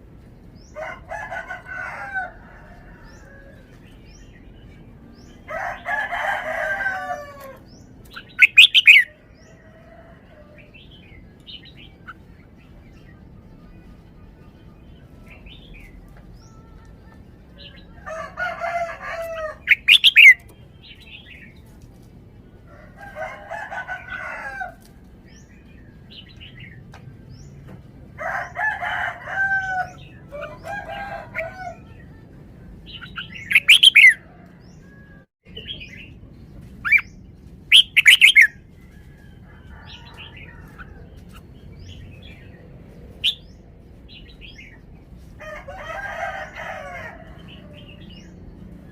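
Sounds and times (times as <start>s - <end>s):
bird warbling phrases: 8.2s - 9.1s, 19.6s - 20.4s.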